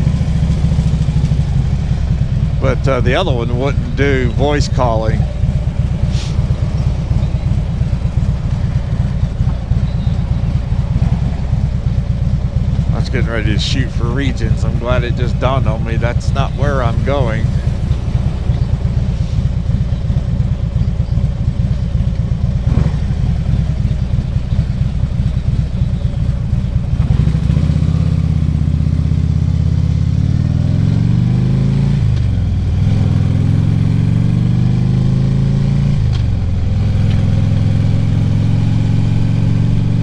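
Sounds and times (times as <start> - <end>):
motorcycle engine accelerating: 0.0 - 40.0.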